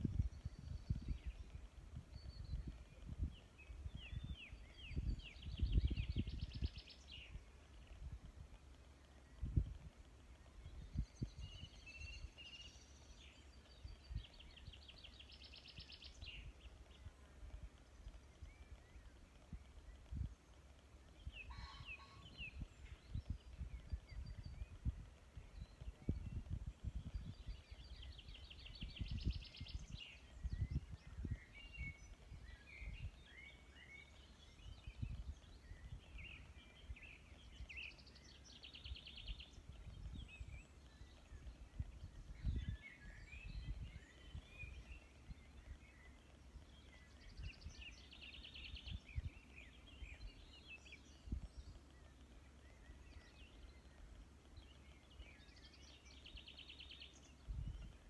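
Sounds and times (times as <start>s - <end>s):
faint songbirds singing: 0.0s - 58.0s
bird trill: 21.4s - 23.0s.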